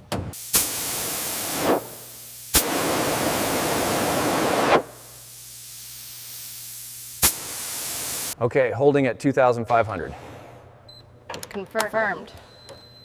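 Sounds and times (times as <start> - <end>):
pressurised spray hissing: 0.4 - 8.4.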